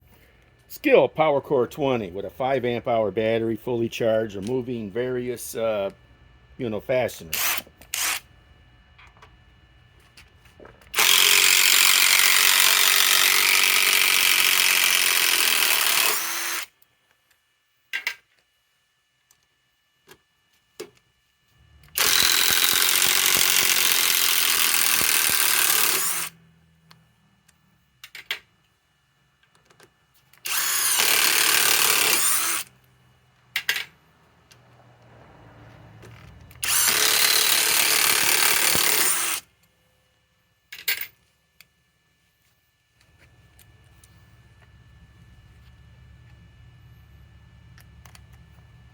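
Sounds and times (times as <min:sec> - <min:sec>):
impact driver running: 0:07.3 - 0:08.2, 0:10.8 - 0:16.7, 0:21.7 - 0:26.4, 0:30.4 - 0:32.8, 0:34.6 - 0:39.5.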